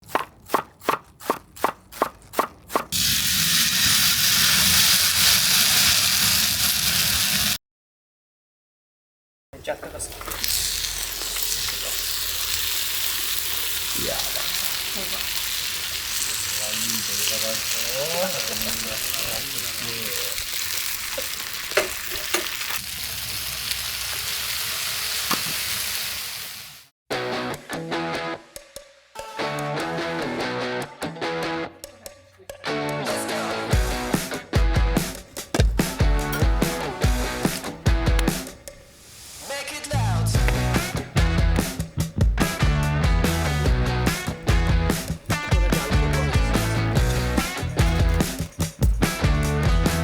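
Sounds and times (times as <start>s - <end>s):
food sizzling on a hot plate: 2.9s - 7.6s, 9.8s - 26.9s, 35.4s - 39.7s, 40.3s - 50.0s
cooking utensil tapping: 21.7s - 22.5s, 35.2s - 38.9s, 40.4s - 42.2s
even knocks: 35.2s - 38.9s.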